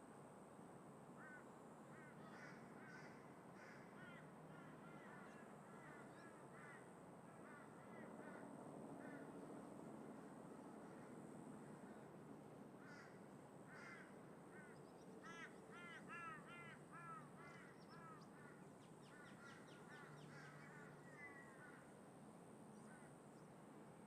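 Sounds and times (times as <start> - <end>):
wind: 0.0 - 24.0
crows cawing: 1.2 - 8.4, 12.8 - 21.9.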